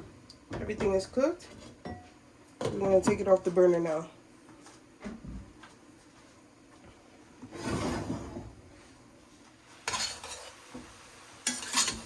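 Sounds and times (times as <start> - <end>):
pot scraping on stovetop: 7.4 - 8.9, 9.8 - 10.7, 11.4 - 12.0
metal pot clanks: 11.4 - 12.0.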